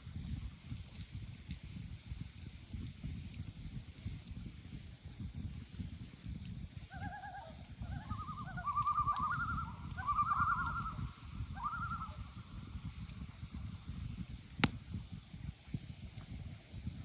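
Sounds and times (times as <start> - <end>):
loons tremolo calls: 6.9 - 12.4.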